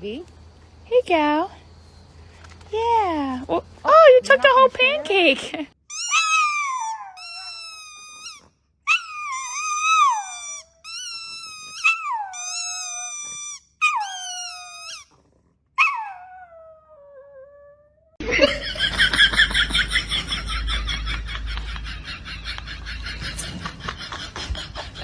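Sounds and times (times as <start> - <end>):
dog howling and whining: 5.9 - 15.2, 15.8 - 18.2.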